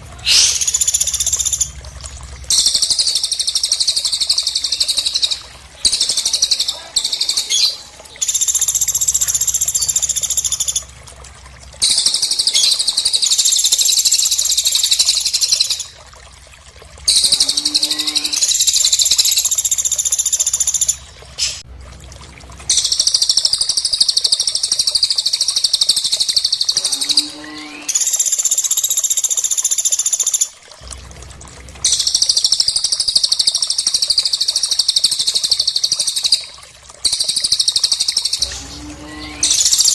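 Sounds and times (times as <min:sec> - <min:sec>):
low steady hum: 0:00.0 - 0:24.3, 0:30.6 - 0:33.0, 0:38.3 - 0:39.9
lower-pitched bird call: 0:00.2 - 0:00.9
birds chattering song: 0:02.5 - 0:10.8.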